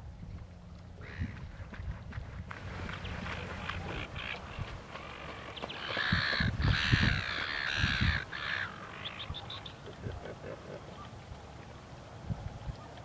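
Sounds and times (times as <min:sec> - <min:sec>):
bird cawing: 0:01.0 - 0:01.4, 0:03.4 - 0:09.8.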